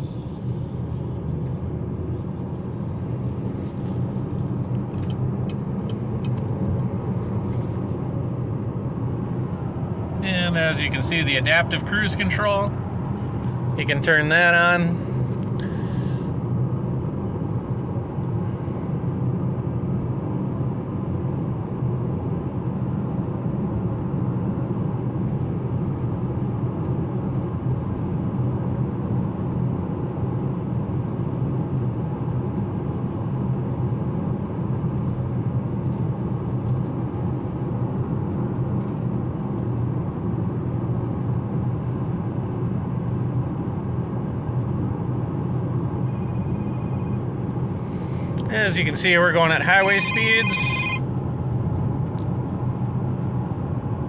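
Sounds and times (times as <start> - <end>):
in-cabin road noise: 0.0 - 54.0.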